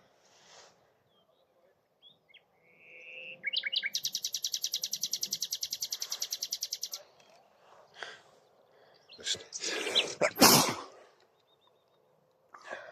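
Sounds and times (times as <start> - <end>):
nightingale singing: 1.1 - 7.0.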